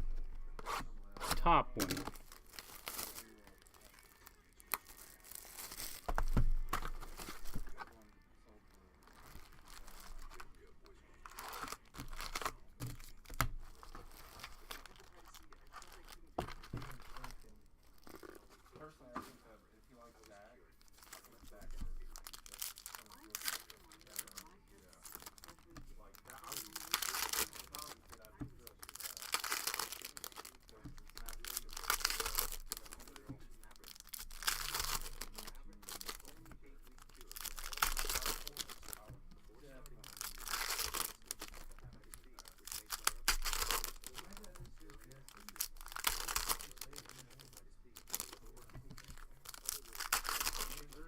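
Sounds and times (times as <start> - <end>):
foil wrappers crinkling and tearing: 0.0 - 51.0.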